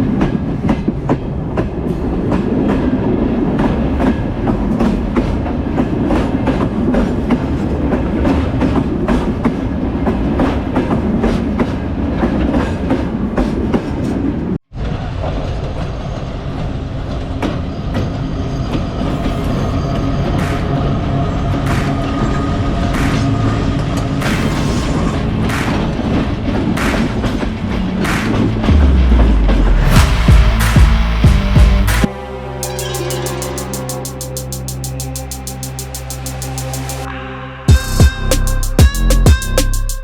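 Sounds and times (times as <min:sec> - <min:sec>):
train rumbling on rails: 0:00.0 - 0:37.1
steady hum: 0:28.2 - 0:37.1.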